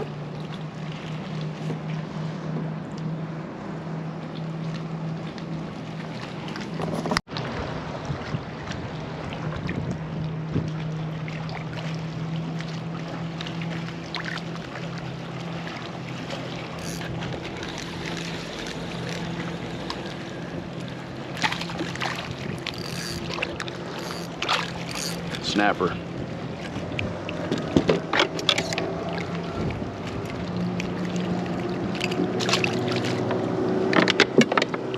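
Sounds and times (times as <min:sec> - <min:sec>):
water noise: 0:00.0 - 0:34.9
wind: 0:00.0 - 0:34.9
electric motor hum: 0:16.8 - 0:20.1, 0:22.4 - 0:25.4.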